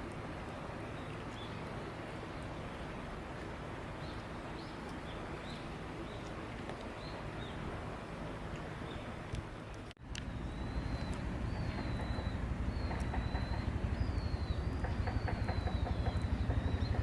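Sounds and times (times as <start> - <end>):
outdoor background hum: 8.5 - 17.0
small birds chirping: 10.0 - 17.0.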